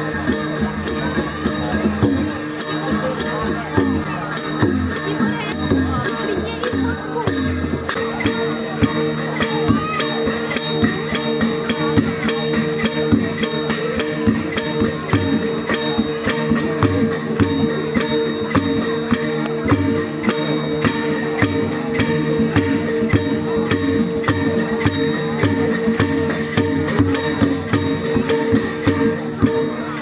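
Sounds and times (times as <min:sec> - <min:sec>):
cymbals clashing: 0:00.0 - 0:30.0
low drum beats: 0:00.0 - 0:30.0.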